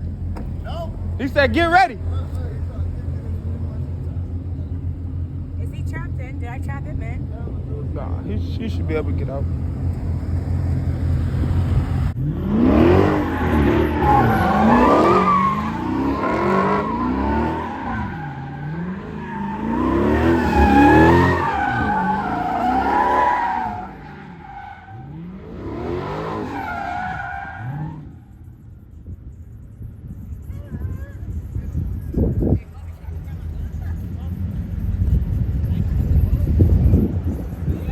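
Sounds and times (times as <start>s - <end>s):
car engine revving: 0.0s - 28.8s
tyres squealing: 13.0s - 25.2s.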